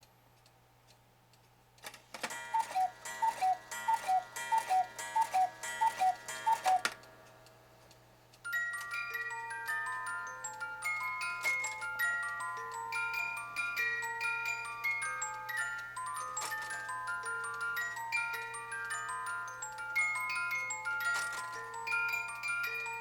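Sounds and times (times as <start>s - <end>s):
clock mechanism clicking: 0.4s - 8.4s
music box tune: 2.3s - 23.0s
two-note cuckoo calls: 2.5s - 7.0s.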